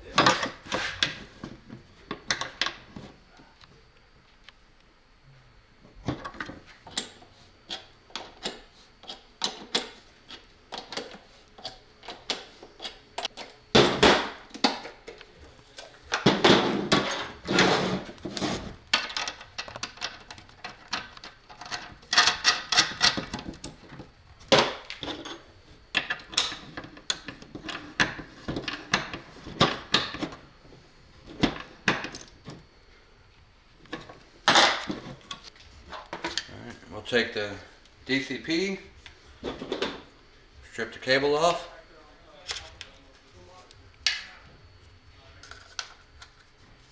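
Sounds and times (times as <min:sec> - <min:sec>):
metal tools clicking and rattling: 0:19.0 - 0:23.7.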